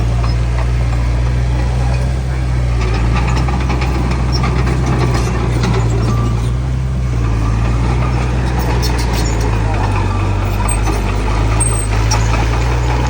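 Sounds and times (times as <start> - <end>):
heavy diesel engine droning: 0.0 - 13.0
faint clicks and rattles: 0.1 - 13.0.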